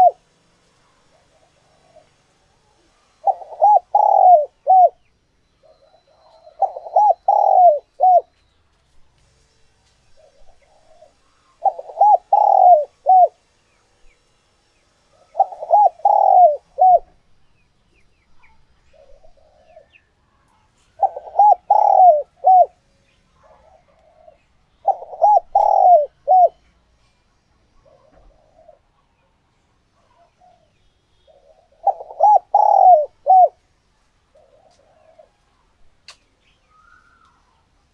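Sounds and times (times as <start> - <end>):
dove cooing: 0.0 - 0.2, 1.1 - 2.2, 3.2 - 8.3, 10.2 - 13.4, 15.2 - 17.2, 19.0 - 20.0, 20.9 - 22.8, 23.4 - 26.6, 27.8 - 29.0, 31.3 - 33.6, 34.3 - 35.4.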